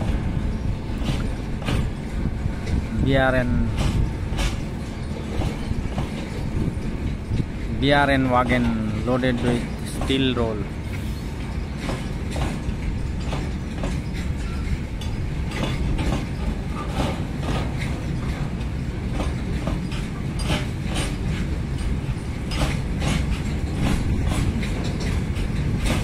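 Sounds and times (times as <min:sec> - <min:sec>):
train wheels rumbling on rail: 0:00.0 - 0:26.0
wheels clanking over rail joints: 0:00.0 - 0:26.0.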